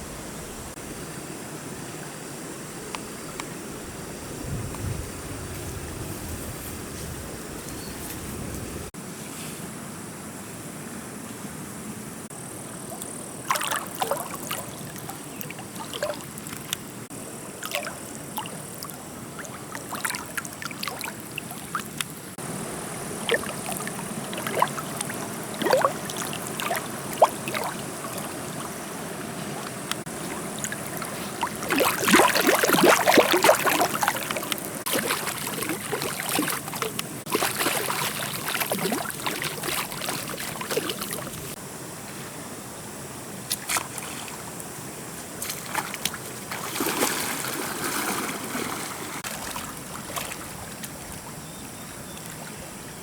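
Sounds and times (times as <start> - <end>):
steady background hiss: 0.0 - 53.0
water splashing and trickling: 12.7 - 41.6, 43.5 - 53.0.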